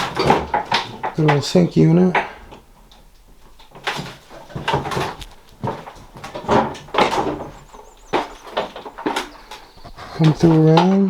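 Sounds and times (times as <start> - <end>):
short squeaks: 2.2 - 10.6
knocks thumps and scuffs: 3.7 - 11.0.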